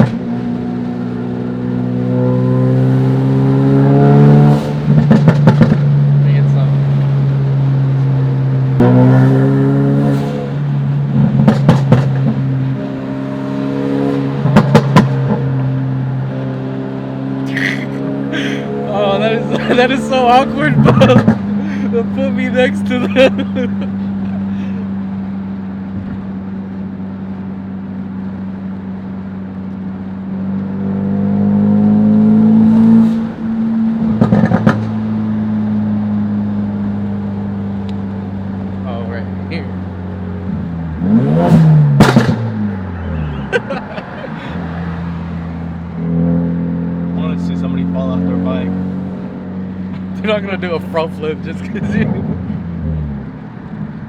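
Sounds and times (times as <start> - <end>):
car engine accelerating: 0.0 - 54.0
exhaust pops and cracks: 4.9 - 5.9, 11.2 - 12.4, 14.5 - 15.4, 34.2 - 35.0, 42.0 - 42.7.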